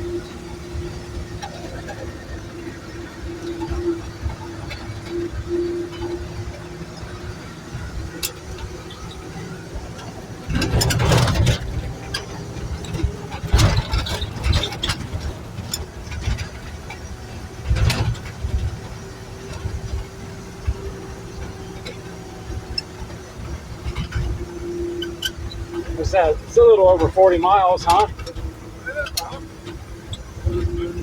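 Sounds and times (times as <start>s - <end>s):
truck engine rumble: 0.0s - 31.0s
rattling and clattering: 0.2s - 31.0s.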